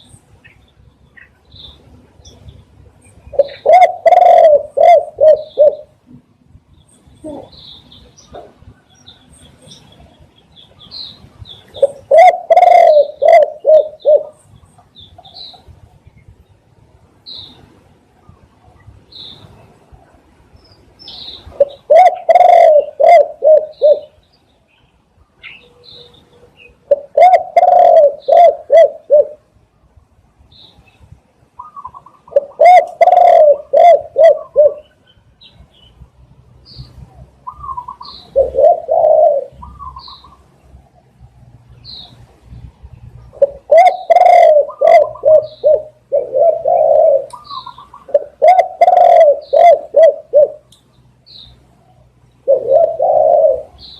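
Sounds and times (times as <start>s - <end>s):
small birds chirping: 0.0s - 29.8s, 30.4s - 53.9s
dove cooing: 3.3s - 6.0s, 7.2s - 7.6s, 11.7s - 14.4s, 21.5s - 24.2s, 26.8s - 29.4s, 31.6s - 35.0s, 37.4s - 40.4s, 43.3s - 50.7s, 52.3s - 53.9s.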